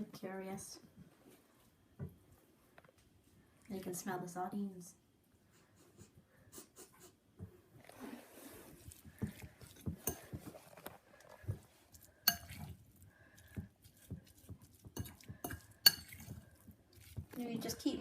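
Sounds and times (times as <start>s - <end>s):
fork tapping bowl: 9.2s - 10.5s, 12.2s - 12.8s, 13.5s - 17.4s.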